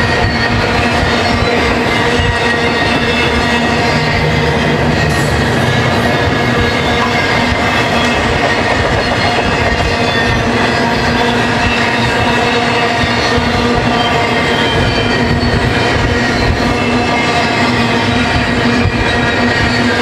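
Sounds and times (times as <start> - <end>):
freight train wheels rumbling on rail: 0.0 - 20.0
ringing metallic tones: 0.0 - 20.0.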